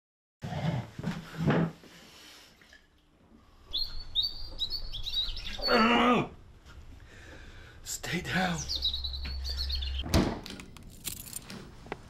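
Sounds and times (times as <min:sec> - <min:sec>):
small bird chirping: 0:03.7 - 0:05.9, 0:08.6 - 0:10.0.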